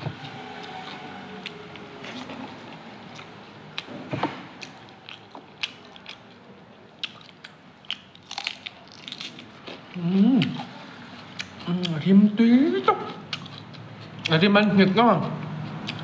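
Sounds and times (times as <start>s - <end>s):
crisp bites and wet chewing: 4.6s - 12.1s.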